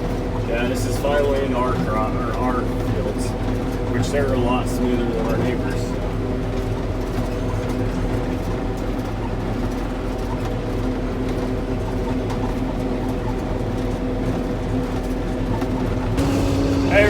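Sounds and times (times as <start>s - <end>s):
farm machine engine hum: 15.8s - 17.0s.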